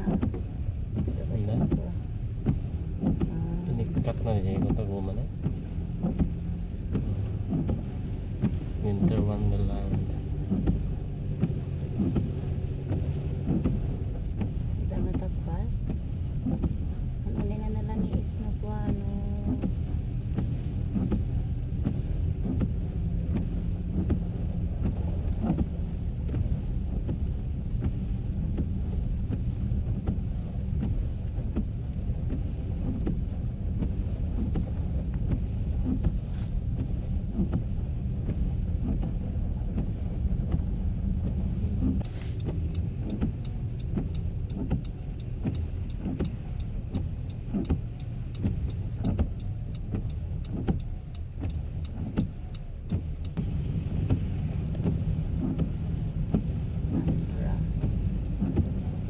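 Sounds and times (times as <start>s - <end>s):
car engine and road rumble: 0.0s - 59.0s
small ticks and knocks: 9.8s - 10.8s, 41.2s - 53.4s.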